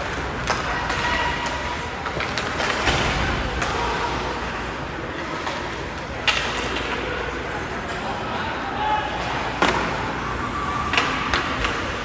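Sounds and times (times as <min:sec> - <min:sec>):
hockey sticks and puck knocks: 0:06.2 - 0:07.0.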